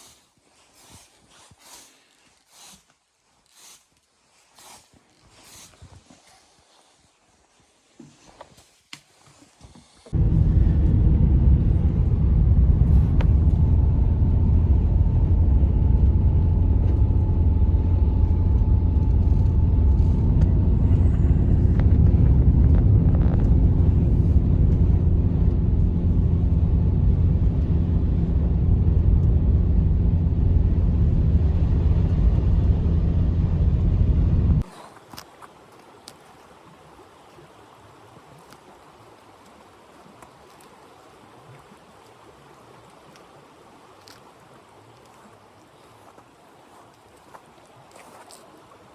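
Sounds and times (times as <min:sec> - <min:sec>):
blizzard wind rumbling on microphone: 0:10.1 - 0:34.7.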